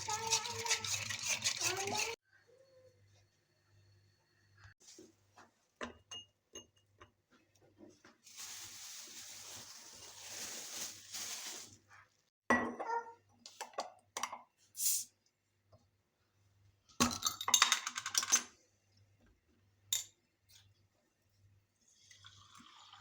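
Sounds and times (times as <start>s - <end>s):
running water: 0.0s - 2.2s
dishes clinking: 12.5s - 13.0s.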